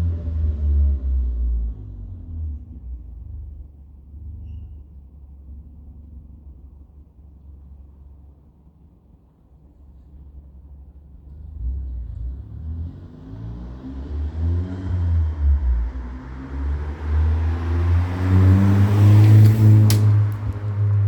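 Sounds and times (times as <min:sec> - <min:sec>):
car exhaust rumble: 0:00.0 - 0:14.3, 0:15.2 - 0:21.0.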